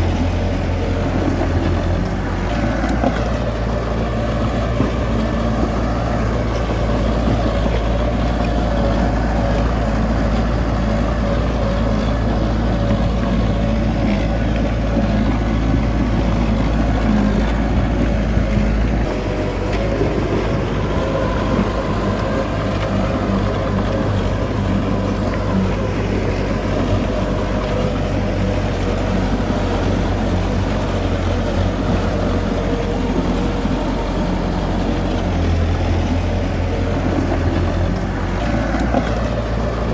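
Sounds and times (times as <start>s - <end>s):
heavy diesel engine under load: 0.0s - 39.9s.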